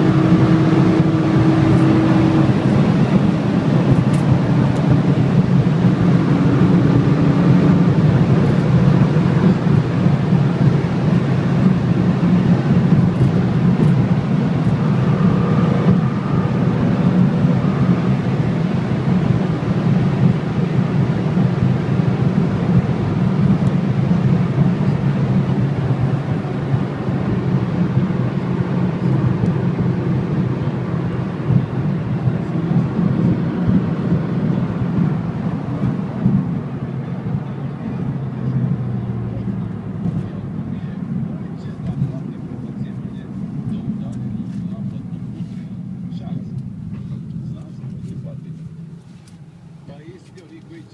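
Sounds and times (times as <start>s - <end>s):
vehicle engine and road noise: 0.0s - 50.9s.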